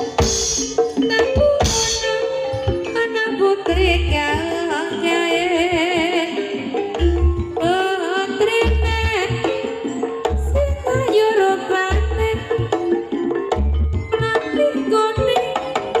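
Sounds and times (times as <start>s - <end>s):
drum strokes: 0.0s - 4.6s
person singing with vibrato: 0.0s - 13.1s.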